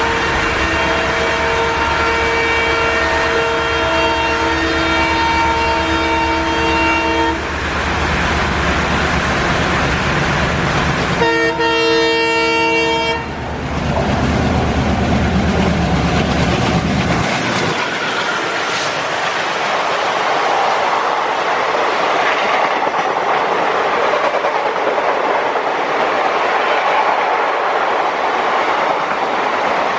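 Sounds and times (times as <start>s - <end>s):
locomotive horn blasts: 0.0s - 7.5s, 11.2s - 13.4s
train rumbling: 0.0s - 29.9s.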